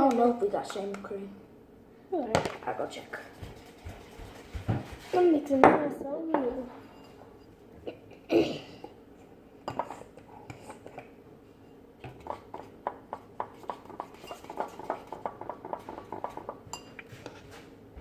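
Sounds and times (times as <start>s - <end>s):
utensil clinking in a bowl: 13.4s - 17.1s.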